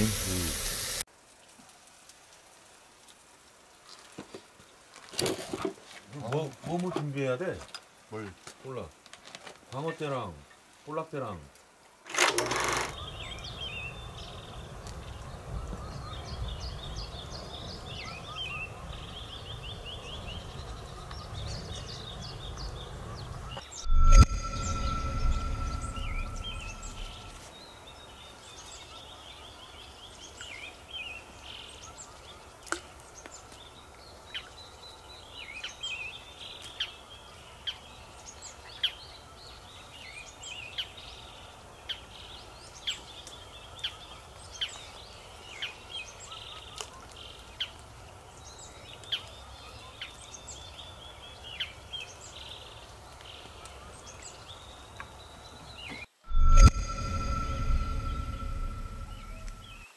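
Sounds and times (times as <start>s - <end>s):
bird high call: 23.7s - 27.5s, 56.3s - 59.9s.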